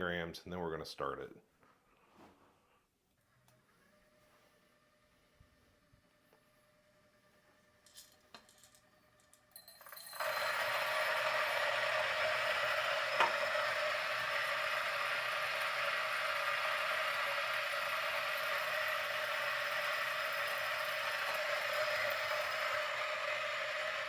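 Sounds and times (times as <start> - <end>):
coffee grinder grinding beans: 5.7 - 24.0.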